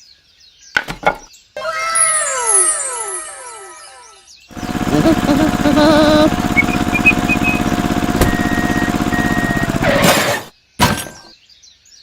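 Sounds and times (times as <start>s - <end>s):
tractor engine pulsing: 4.5s - 10.5s.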